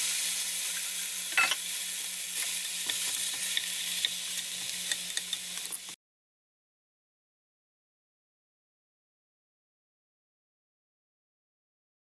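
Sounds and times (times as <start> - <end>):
sprouts sizzling in a pan: 0.0 - 6.0.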